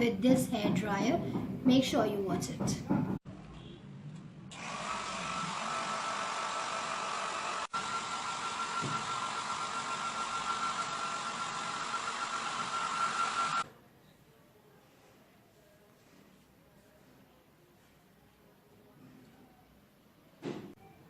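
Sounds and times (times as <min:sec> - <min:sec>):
hair dryer running: 0:04.5 - 0:13.6.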